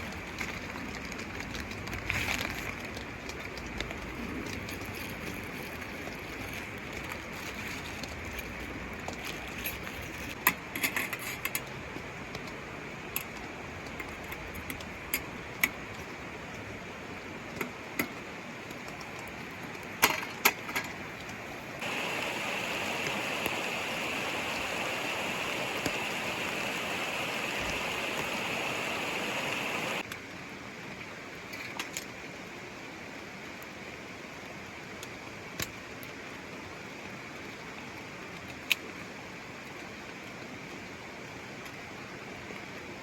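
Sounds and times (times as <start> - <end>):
rain and stream: 0.0 - 43.0
loud steady hiss: 21.6 - 30.1.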